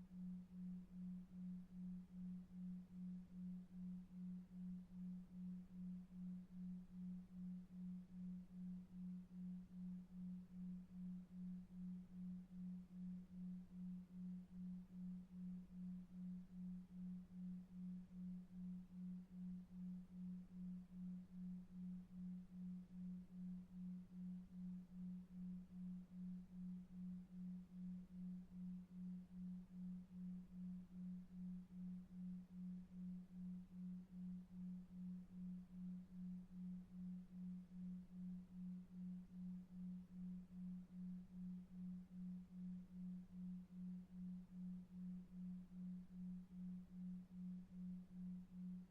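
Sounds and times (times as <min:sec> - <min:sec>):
low pulsing pure tone: 0:00.0 - 0:48.9.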